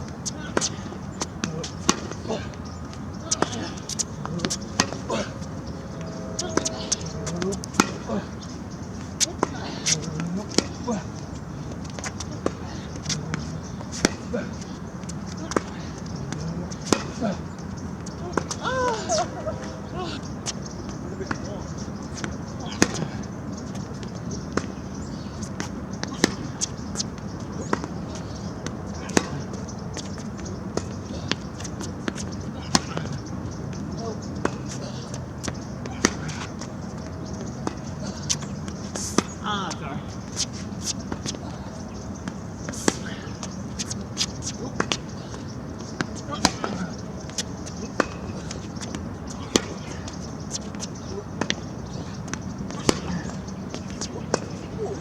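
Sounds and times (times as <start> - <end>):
tennis ball struck by racket: 3.3 - 5.3, 46.0 - 47.0, 47.9 - 51.6, 52.3 - 53.2
tennis ball bouncing on court: 3.3 - 8.2, 22.2 - 23.0, 27.6 - 33.1, 35.4 - 39.4, 40.3 - 51.7, 52.3 - 54.9.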